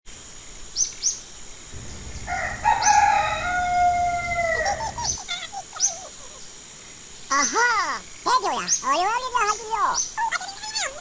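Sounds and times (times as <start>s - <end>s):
rooster crowing: 1.8s - 5.2s.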